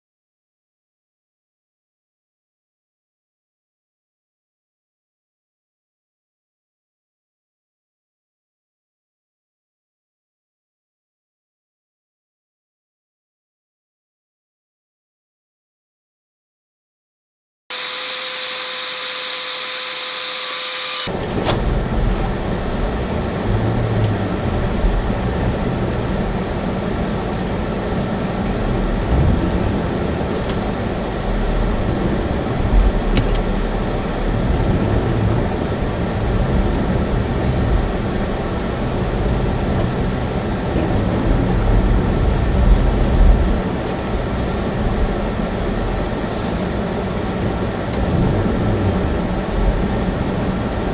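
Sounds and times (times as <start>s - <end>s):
steady electronic tone: 17.7s - 21.1s
car driving heard from cabin: 21.1s - 50.9s.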